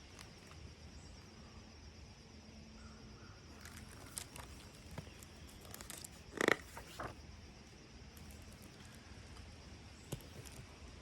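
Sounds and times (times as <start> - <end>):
paper rustling: 3.6 - 7.2, 8.2 - 9.0, 10.0 - 10.7.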